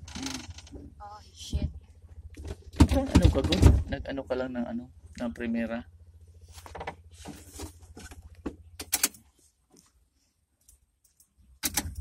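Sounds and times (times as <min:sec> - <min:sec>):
gear shift clicks and knocks: 0:06.6 - 0:09.3, 0:11.1 - 0:12.0.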